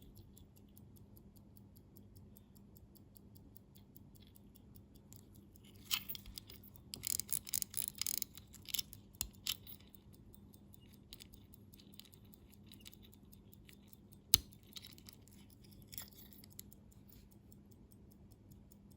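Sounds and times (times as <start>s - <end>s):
pocket watch ticking: 0.0s - 18.9s
handling clicks and rustles: 5.6s - 10.0s, 13.7s - 17.2s.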